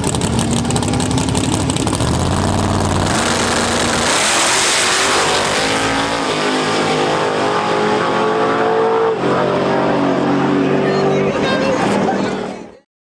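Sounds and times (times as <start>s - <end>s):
race engine accelerating: 0.0s - 12.8s.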